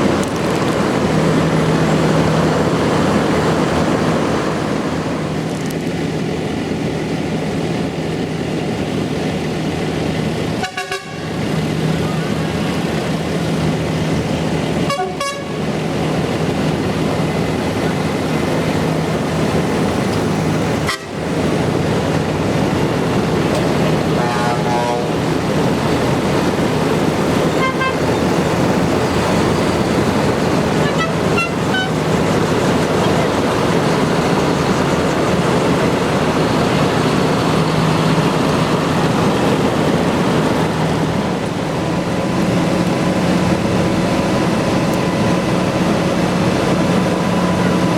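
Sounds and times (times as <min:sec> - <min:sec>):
tractor engines running: 0:00.0 - 0:47.9
horn toots: 0:10.6 - 0:11.4, 0:14.8 - 0:15.6, 0:20.8 - 0:21.2, 0:24.0 - 0:25.2, 0:27.5 - 0:28.1, 0:30.8 - 0:32.0.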